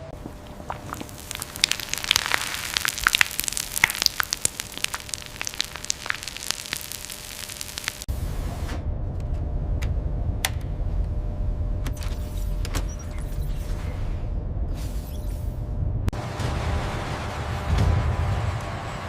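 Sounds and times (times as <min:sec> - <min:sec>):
low rumble: 0:00.0 - 0:19.0
crackling and sharp pops: 0:00.2 - 0:08.1
steady hiss: 0:00.2 - 0:08.1.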